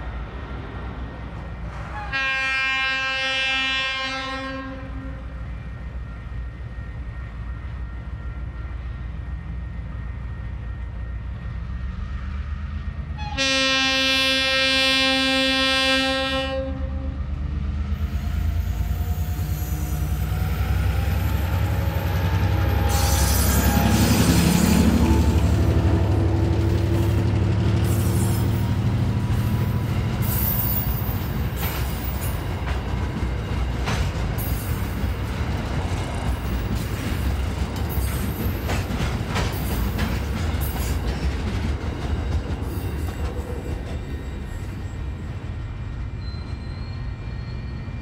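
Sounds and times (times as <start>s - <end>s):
freight train rumble: 0.0s - 48.0s
thin wheel squeal: 46.2s - 48.0s.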